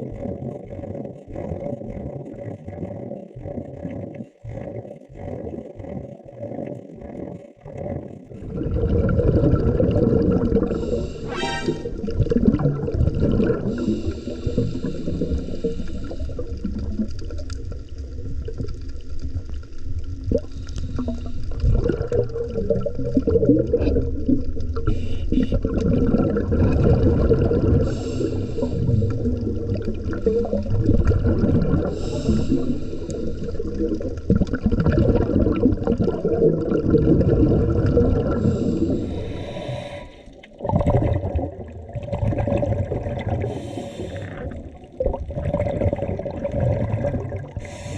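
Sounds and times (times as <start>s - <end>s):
air bubbling underwater: 0.0s - 17.4s, 20.3s - 47.9s
diver breathing underwater: 7.0s - 12.3s, 13.3s - 16.8s, 20.4s - 21.7s, 24.8s - 36.2s, 36.8s - 41.2s, 43.0s - 46.1s, 47.5s - 47.9s.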